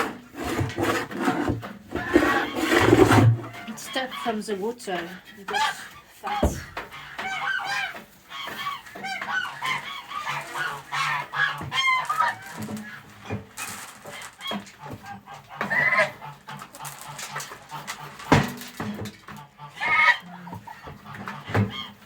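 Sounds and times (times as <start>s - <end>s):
hens clucking: 0.0s - 22.0s
geese calling: 0.1s - 18.3s, 19.3s - 22.0s
knocks: 6.4s - 6.9s.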